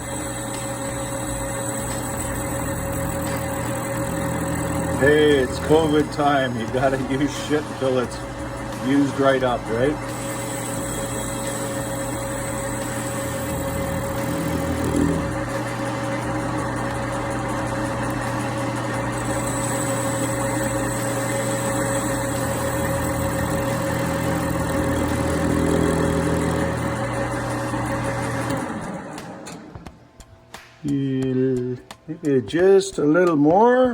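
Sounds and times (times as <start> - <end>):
metal lathe motor humming: 0.0 - 29.9
tool cutting steel: 0.0 - 29.9.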